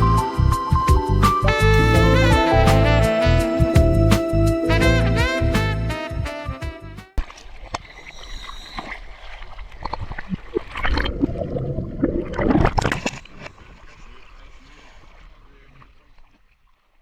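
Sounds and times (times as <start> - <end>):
water splashing and gurgling: 7.2 - 17.0.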